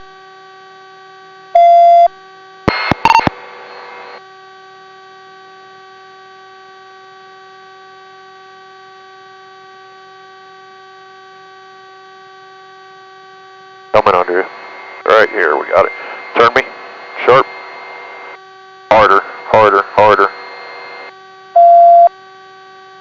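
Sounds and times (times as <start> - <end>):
loud beep tone: 1.6 - 2.1, 2.7 - 4.0, 21.6 - 22.1
electrical hum of radio audio: 2.7 - 4.2, 13.8 - 22.1
static hiss: 14.0 - 21.1.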